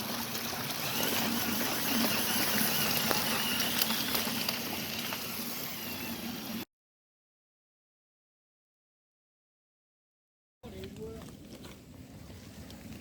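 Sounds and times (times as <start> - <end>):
stream flowing: 0.0 - 6.5.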